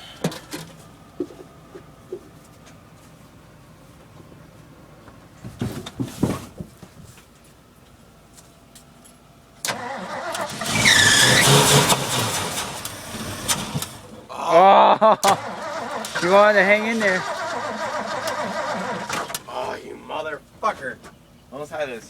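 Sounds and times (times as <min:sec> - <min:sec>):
truck engine running with whine: 0:07.6 - 0:14.3, 0:15.3 - 0:19.7.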